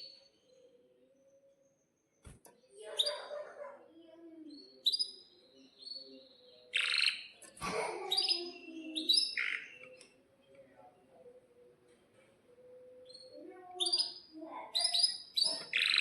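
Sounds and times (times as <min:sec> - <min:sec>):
canary singing: 0:02.8 - 0:03.8, 0:04.5 - 0:07.4, 0:08.0 - 0:10.2, 0:12.6 - 0:16.0.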